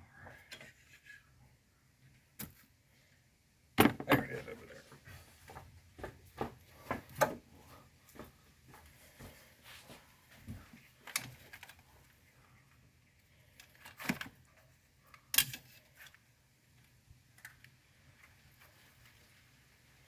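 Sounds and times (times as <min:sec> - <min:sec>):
hand tools clicking and knocking: 0:03.8 - 0:04.6.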